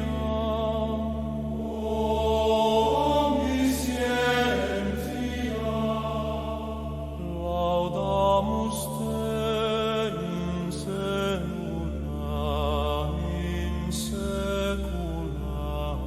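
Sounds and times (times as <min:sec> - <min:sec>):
low drone: 0:00.0 - 0:16.0.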